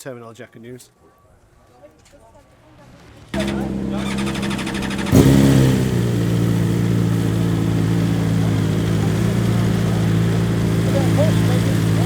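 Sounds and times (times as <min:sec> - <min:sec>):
motorcycle engine running: 0:03.4 - 0:12.0.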